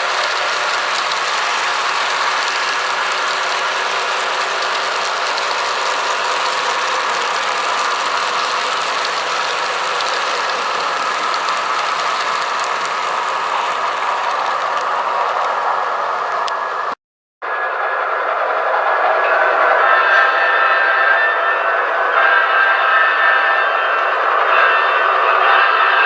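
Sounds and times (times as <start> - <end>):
model train motor whirring: 0.0 - 17.0
wheel noise on rails: 0.0 - 26.0.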